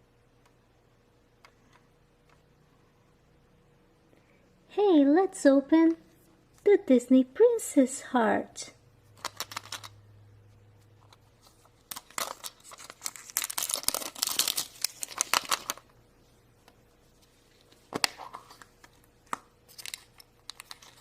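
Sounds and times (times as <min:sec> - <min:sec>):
packaging tearing and crinkling: 0:09.2 - 0:09.9, 0:11.8 - 0:15.8, 0:19.7 - 0:21.0.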